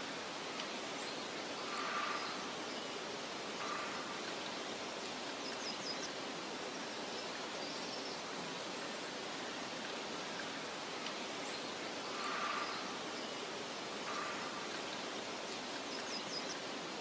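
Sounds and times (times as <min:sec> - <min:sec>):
soft wind hiss: 0:00.0 - 0:17.0
faint bird call: 0:14.0 - 0:15.0.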